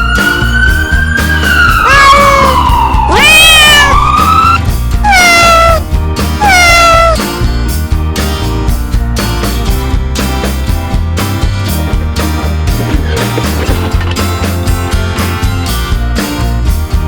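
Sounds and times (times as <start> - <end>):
background music with steady beat: 0.0 - 5.1, 7.2 - 17.0
cat meowing: 1.8 - 5.8, 6.4 - 7.2.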